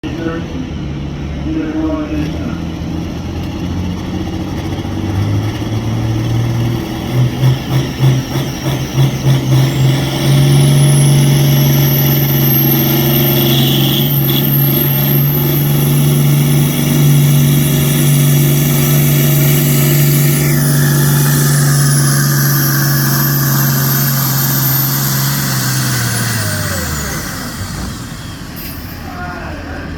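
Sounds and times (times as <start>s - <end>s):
tractor engine at full throttle: 0.0s - 29.9s
turbocharger whistle: 7.1s - 29.9s.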